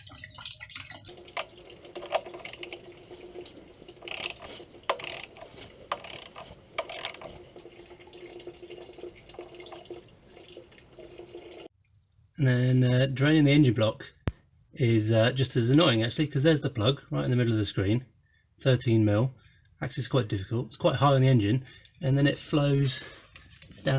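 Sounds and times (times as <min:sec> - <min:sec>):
liquid pouring into a bucket: 0:00.0 - 0:12.1.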